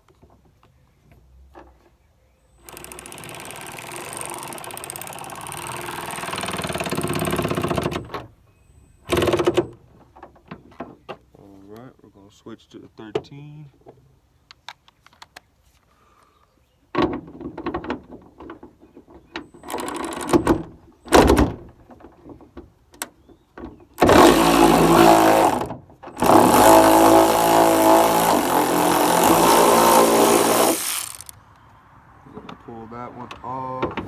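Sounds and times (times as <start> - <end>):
ratchet clicking: 2.6 - 8.1, 26.2 - 31.4
loud motor running: 24.0 - 31.3.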